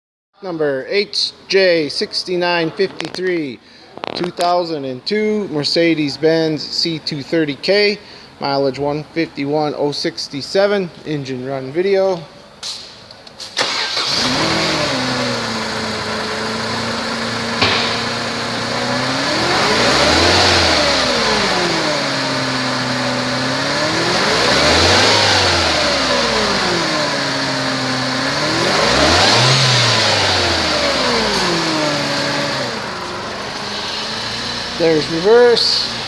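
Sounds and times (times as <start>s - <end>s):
car engine idling and revving: 13.6s - 36.0s.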